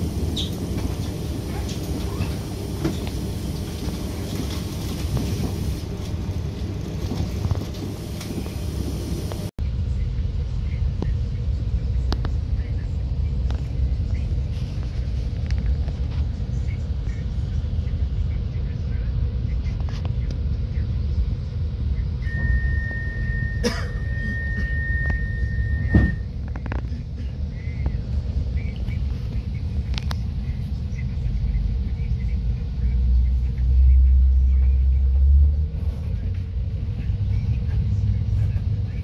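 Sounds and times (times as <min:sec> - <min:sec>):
train running rumble: 0:00.0 - 0:39.0
steady high tone: 0:22.2 - 0:26.2.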